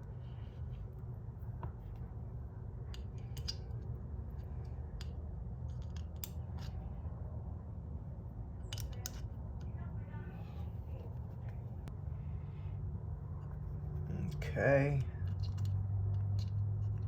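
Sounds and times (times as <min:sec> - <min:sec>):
light clicks of metal parts: 0:00.0 - 0:07.4, 0:08.4 - 0:09.8, 0:13.3 - 0:17.0
low steady hum: 0:00.0 - 0:17.0.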